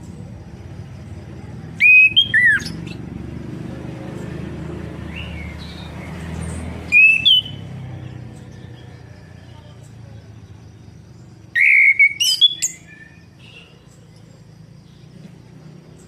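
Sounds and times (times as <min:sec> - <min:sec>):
bird whistled call: 0:01.8 - 0:03.0, 0:06.9 - 0:07.6, 0:11.5 - 0:13.7.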